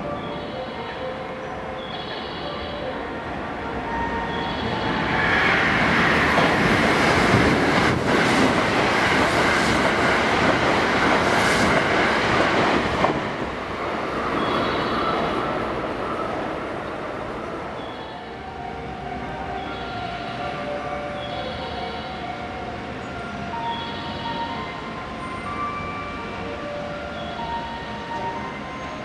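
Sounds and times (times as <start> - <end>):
level crossing warning bell: 0.0 - 5.0, 14.1 - 29.0
train passing at high speed: 0.0 - 29.0.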